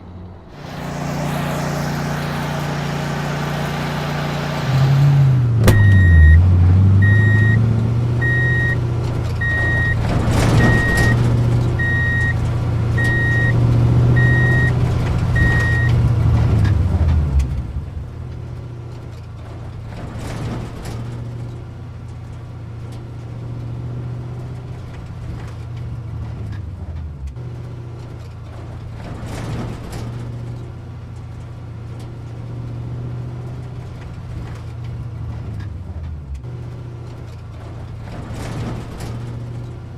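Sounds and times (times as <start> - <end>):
engine low hum: 0.0 - 39.9
reversing alarm beeping: 5.7 - 6.4, 7.0 - 7.6, 8.2 - 8.8, 9.4 - 12.4, 13.0 - 13.6, 14.2 - 14.8, 15.4 - 16.0.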